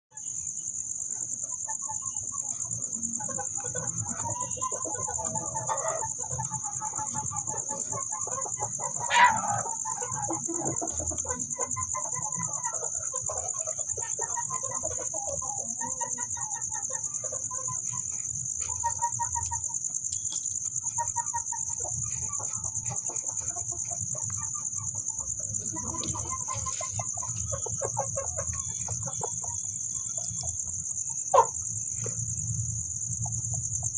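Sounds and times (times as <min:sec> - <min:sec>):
chickens clucking: 0:01.0 - 0:33.9
chicken squawk: 0:03.2 - 0:17.9, 0:25.5 - 0:30.5, 0:31.3 - 0:31.6.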